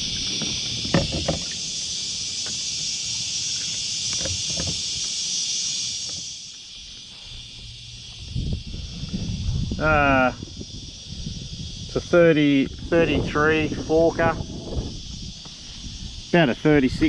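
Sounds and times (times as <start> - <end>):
cicada chorus: 0.0 - 17.0
knocks and clatters on kayak: 0.3 - 1.6, 4.2 - 4.8.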